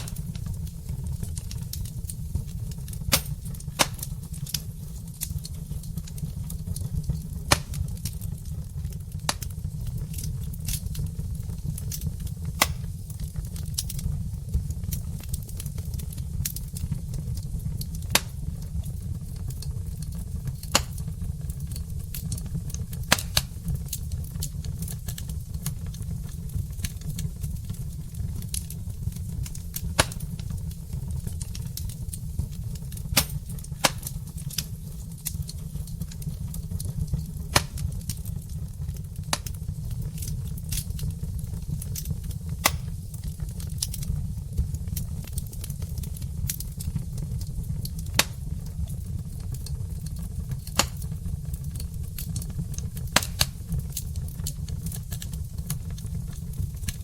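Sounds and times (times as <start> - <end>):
fire crackling and popping: 0.0 - 57.0
low fire rumble: 0.0 - 57.0.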